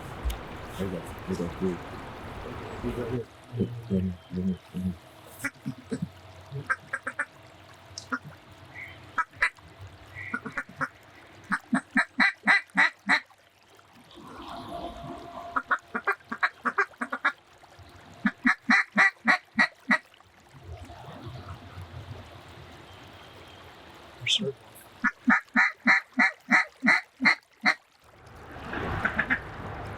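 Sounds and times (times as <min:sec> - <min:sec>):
duck call quacks: 0:18.3 - 0:20.0.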